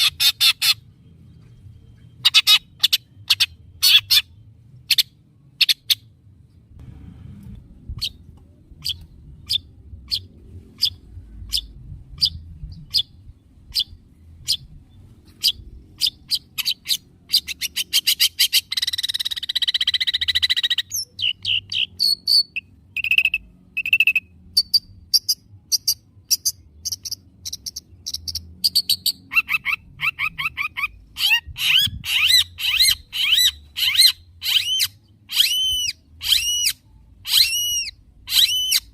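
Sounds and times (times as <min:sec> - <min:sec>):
bird twittering: 0:08.8 - 0:14.7, 0:15.3 - 0:38.9.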